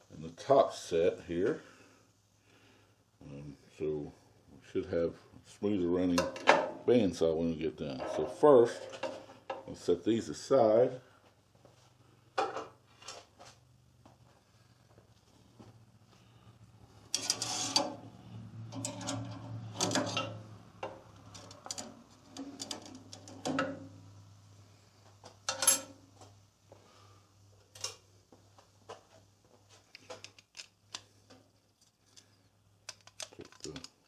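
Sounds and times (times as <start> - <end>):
tools clattering on workbench: 25.5 - 26.0.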